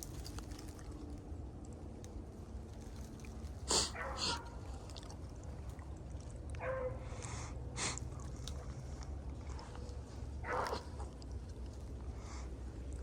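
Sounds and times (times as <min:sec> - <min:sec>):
dogs baying: 0:03.7 - 0:04.6, 0:06.6 - 0:07.2, 0:10.4 - 0:11.2.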